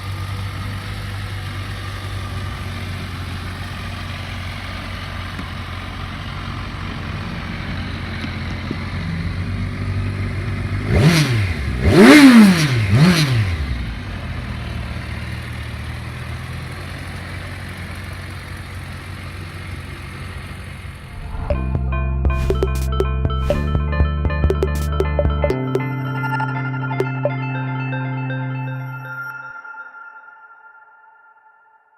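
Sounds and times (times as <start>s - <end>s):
motorcycle engine idling and revving: 0.0s - 21.5s.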